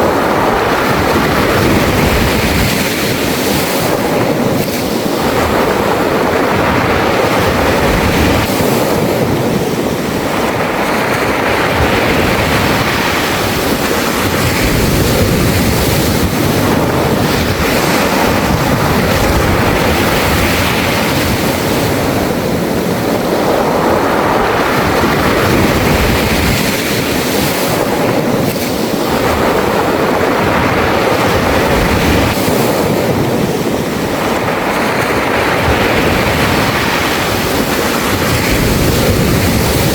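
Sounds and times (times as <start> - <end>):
waves washing over pebbles: 0.0 - 39.9.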